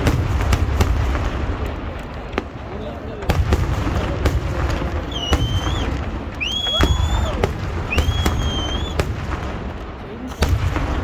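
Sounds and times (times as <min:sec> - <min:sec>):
fireworks banging: 0:00.0 - 0:11.0
high whistles: 0:05.0 - 0:09.1.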